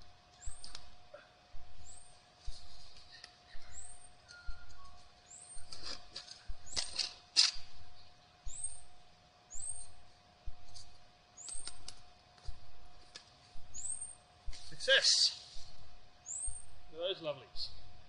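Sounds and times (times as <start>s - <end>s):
bird chirping: 0.4s - 0.8s, 3.1s - 5.7s, 7.9s - 8.8s, 9.5s - 10.0s, 13.7s - 14.2s, 16.2s - 16.7s.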